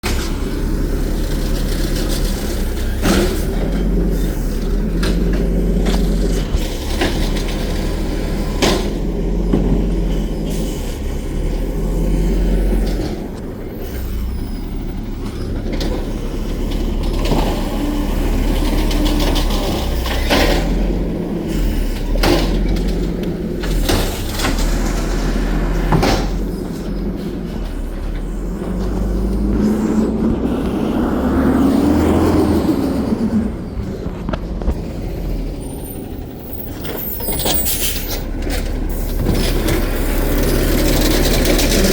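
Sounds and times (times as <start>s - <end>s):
garbage truck engine running: 0.0s - 41.9s
rising and falling whine: 28.3s - 34.1s.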